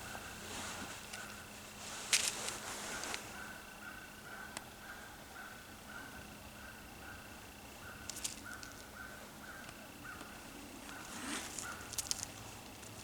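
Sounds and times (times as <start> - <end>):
crackles on dry leaves: 0.0 - 4.0, 7.8 - 13.0
small animal calling: 3.0 - 12.3.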